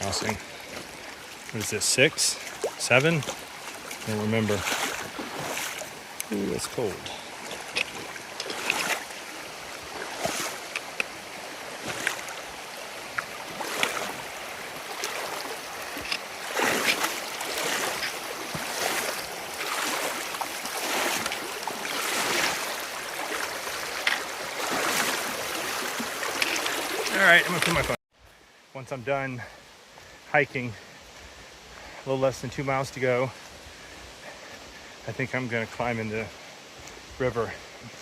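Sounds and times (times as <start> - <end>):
feet wading through water: 0.0 - 28.6, 33.3 - 35.0
stream rushing: 0.0 - 38.0.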